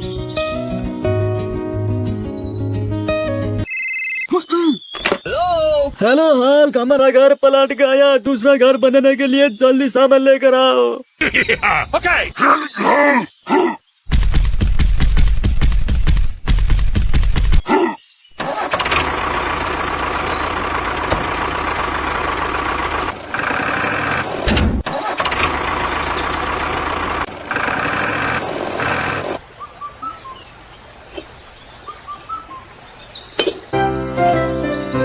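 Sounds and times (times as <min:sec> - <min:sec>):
engine starting and running: 0:18.4 - 0:29.4.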